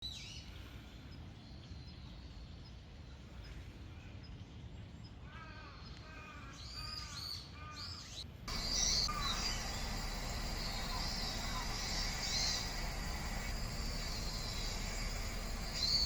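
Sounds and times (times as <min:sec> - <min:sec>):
low outdoor rumble: 0:08.4 - 0:16.0
bird calls falling in pitch: 0:08.5 - 0:16.0.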